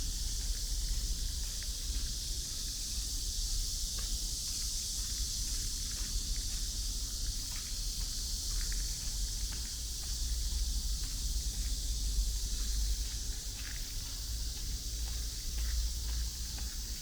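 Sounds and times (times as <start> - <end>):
faint footsteps: 0.2 - 3.1, 4.0 - 17.0.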